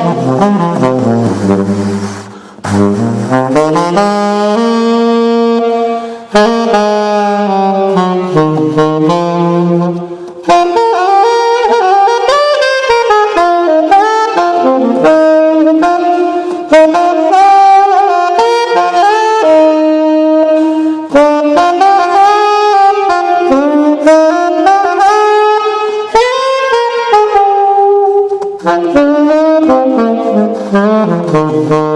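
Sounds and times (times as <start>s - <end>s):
solo saxophone melody: 0.0s - 31.9s
player breathing: 1.2s - 3.3s, 6.0s - 6.3s.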